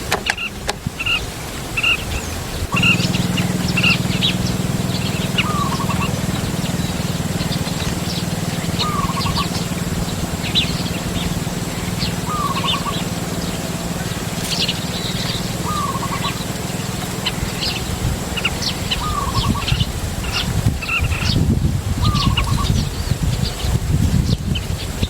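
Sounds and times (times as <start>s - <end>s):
small birds chirping: 0.0s - 25.0s
steady low hum: 2.6s - 20.6s
bird repeating short call: 2.7s - 13.2s, 14.4s - 16.5s.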